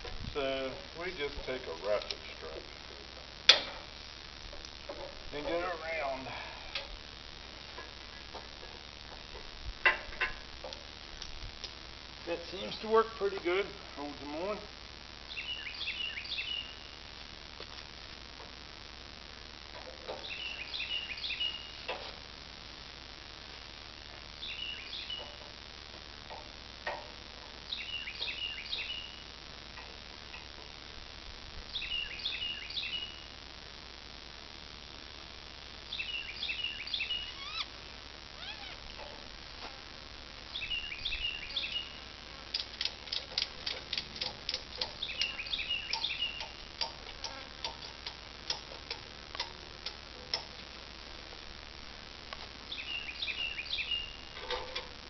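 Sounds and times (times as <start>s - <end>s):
songbird singing: 12.3s - 13.6s, 15.2s - 17.1s, 20.0s - 22.0s, 24.4s - 25.5s, 27.6s - 29.4s, 31.7s - 33.4s, 35.9s - 37.8s, 38.4s - 39.0s, 40.5s - 47.9s, 52.6s - 54.5s
rapid ratchet-like clicks: 42.5s - 50.6s.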